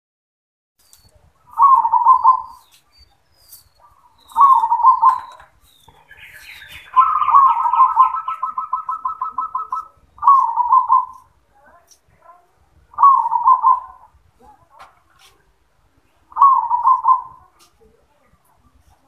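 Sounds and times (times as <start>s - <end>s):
dove cooing: 1.5s - 2.8s, 3.8s - 11.4s, 12.9s - 14.2s, 16.3s - 17.7s.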